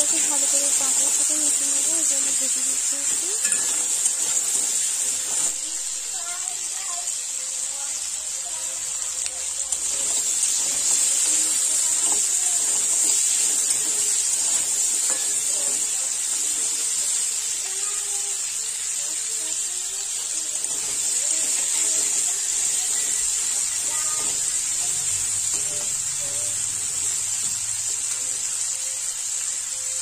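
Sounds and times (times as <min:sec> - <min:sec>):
metal spatula stirring: 0:00.0 - 0:05.6, 0:09.7 - 0:17.9, 0:20.4 - 0:28.4
crab sizzling in hot oil: 0:00.0 - 0:30.0.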